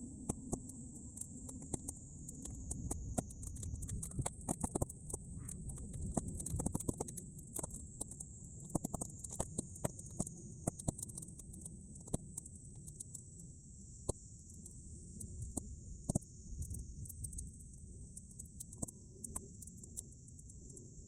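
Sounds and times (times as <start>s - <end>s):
low rumble of flames: 0.0s - 21.0s
wind: 0.0s - 21.0s
bonfire crackling and popping: 0.2s - 13.2s.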